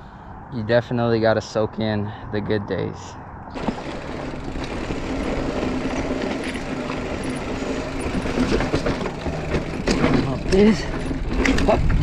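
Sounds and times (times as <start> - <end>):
bike clicks and rattles: 3.5 - 12.0
bike tyres rumbling on dirt: 3.6 - 12.0.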